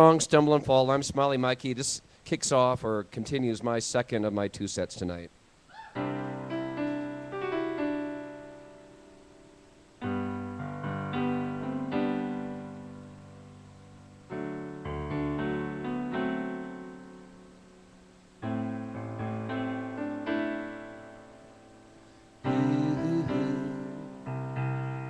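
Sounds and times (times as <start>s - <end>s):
solo piano chords and melody: 6.0s - 25.0s.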